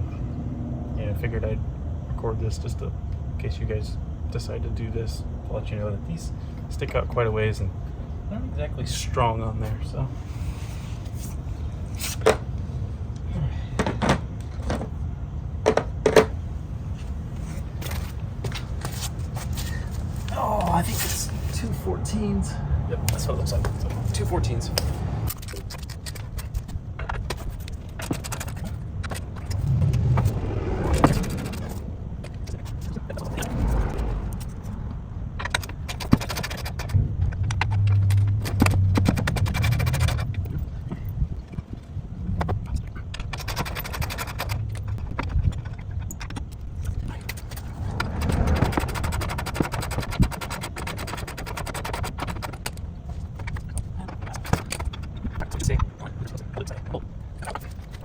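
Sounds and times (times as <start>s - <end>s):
low rumble: 26.7s - 36.0s, 44.4s - 50.0s.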